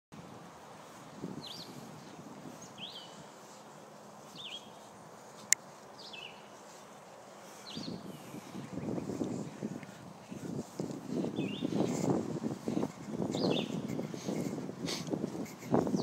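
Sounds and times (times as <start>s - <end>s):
bird chirping: 1.4s - 3.4s, 4.3s - 4.9s, 5.9s - 6.7s, 7.4s - 9.0s, 11.4s - 11.8s, 13.2s - 14.5s.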